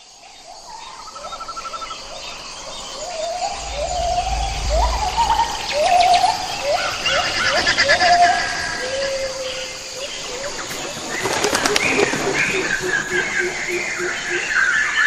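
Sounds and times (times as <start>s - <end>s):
wind rumble on microphone: 2.0s - 11.0s.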